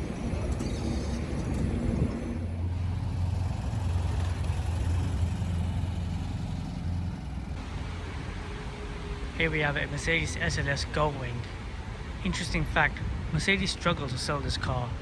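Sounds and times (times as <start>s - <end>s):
street traffic noise: 0.0s - 15.0s
buggy engine idling: 0.2s - 8.2s.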